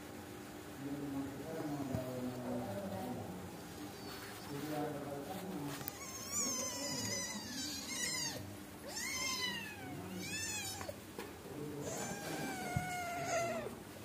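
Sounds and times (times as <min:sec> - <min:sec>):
cats mewing: 0:05.8 - 0:11.0, 0:11.8 - 0:13.8.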